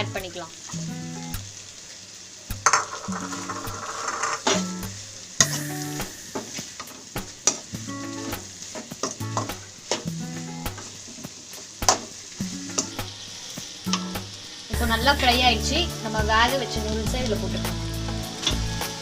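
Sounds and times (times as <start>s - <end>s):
food sizzling in hot oil: 0.0s - 19.0s
spatula scraping a pan: 2.6s - 4.8s.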